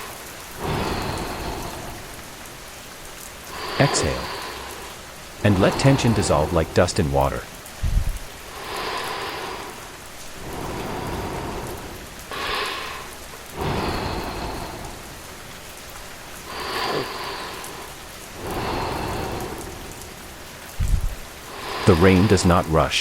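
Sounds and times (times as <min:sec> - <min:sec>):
distant thunder rumble: 0:00.0 - 0:02.7, 0:06.6 - 0:08.8, 0:18.4 - 0:22.3
steady rainfall: 0:00.0 - 0:23.0.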